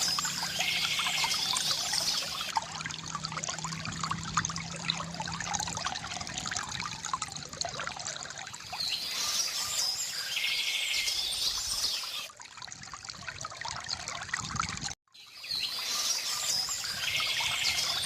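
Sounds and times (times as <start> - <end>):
birds chirping: 0.0 - 2.5
water trickling from a fountain: 0.0 - 18.0.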